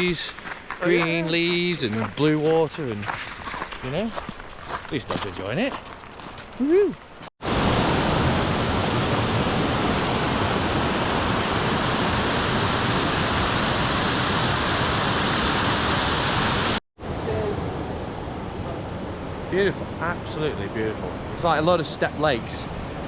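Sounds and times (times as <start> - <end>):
quieter water rush: 0.0 - 23.0
waterfall roaring: 7.4 - 17.6.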